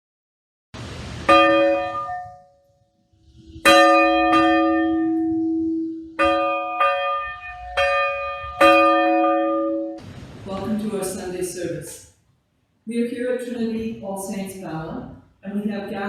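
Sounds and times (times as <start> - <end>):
church bell ringing: 1.3 - 2.6, 3.6 - 10.0.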